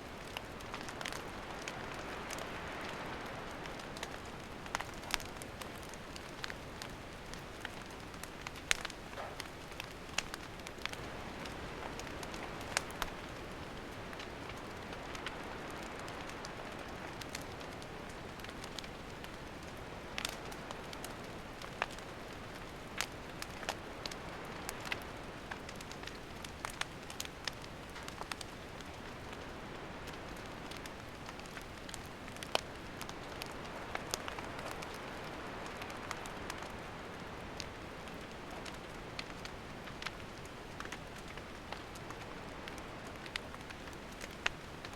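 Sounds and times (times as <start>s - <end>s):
campfire popping and snapping: 0.0s - 44.9s
soft fire hiss: 0.0s - 44.9s.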